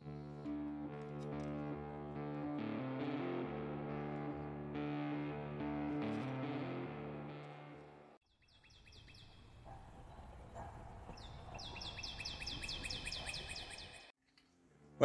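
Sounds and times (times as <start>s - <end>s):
music: 0.0s - 8.2s, 14.2s - 15.0s.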